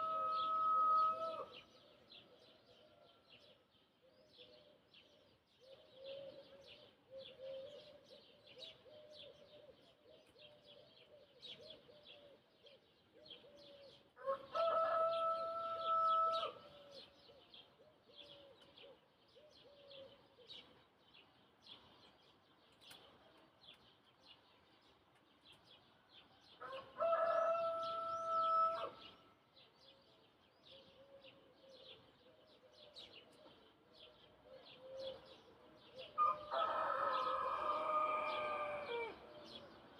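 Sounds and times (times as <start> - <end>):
rooster crowing: 0.0 - 1.6, 14.2 - 16.6, 26.6 - 29.0, 36.2 - 39.3
small birds chirping: 0.0 - 39.9.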